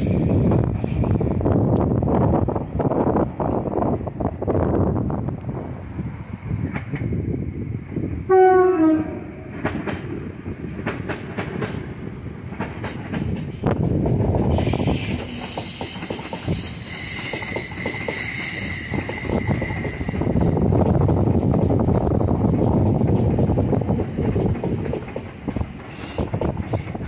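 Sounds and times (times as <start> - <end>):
train wheels squealing: 0.0 - 1.3, 14.5 - 20.9, 25.8 - 27.0
two-tone train horn: 8.3 - 9.5
wheels clicking over rail joints: 9.5 - 27.0.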